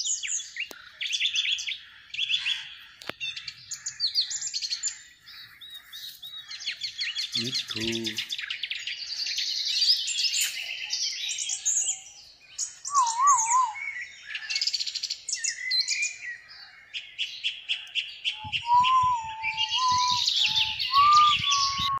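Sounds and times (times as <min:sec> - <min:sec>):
birds chirping: 0:00.0 - 0:22.0
low wavering whistle: 0:12.9 - 0:13.8, 0:18.5 - 0:22.0.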